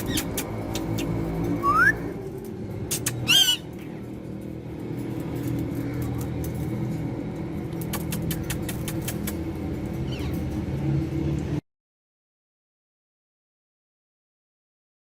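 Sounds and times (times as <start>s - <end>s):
parrot squawking: 0.0s - 0.5s, 2.9s - 3.8s
steady low hum: 0.0s - 11.6s.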